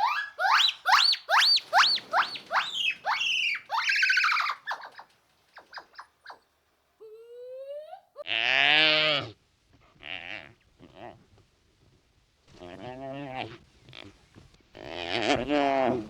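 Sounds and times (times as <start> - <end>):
high squeaky animal calls: 0.0 - 6.5.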